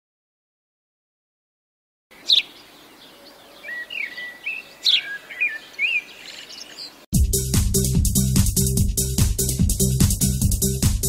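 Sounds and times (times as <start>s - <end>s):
cockatiel calling: 2.2s - 2.6s, 3.2s - 7.0s.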